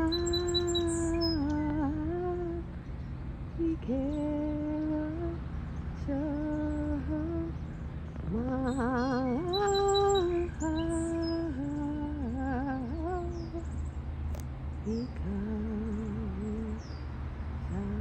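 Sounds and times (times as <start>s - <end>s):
faint high bird chirps: 0.0s - 2.0s, 2.9s - 12.0s.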